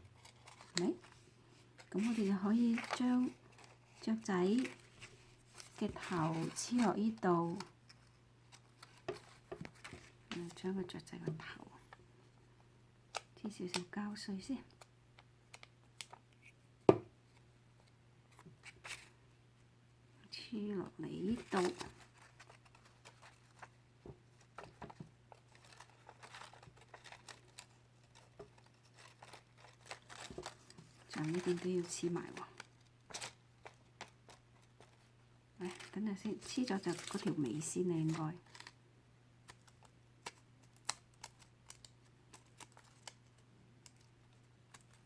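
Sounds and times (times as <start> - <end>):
paper rustling and tapping: 8.5 - 10.5, 21.3 - 32.0.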